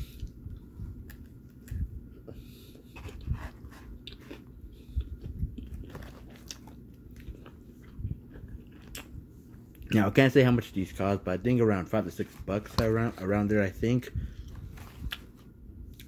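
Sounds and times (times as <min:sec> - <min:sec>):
person chewing food: 0:00.1 - 0:09.9, 0:14.5 - 0:16.0.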